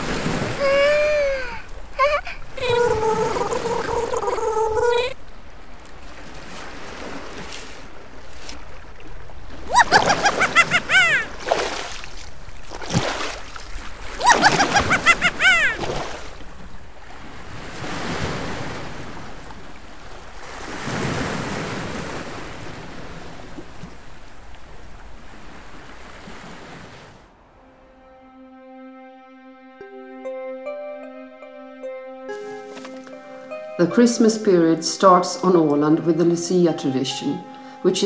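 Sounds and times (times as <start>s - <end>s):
surf washing on shore: 0.0s - 27.7s
high repeated calls: 9.7s - 11.3s
soft music: 27.5s - 38.0s.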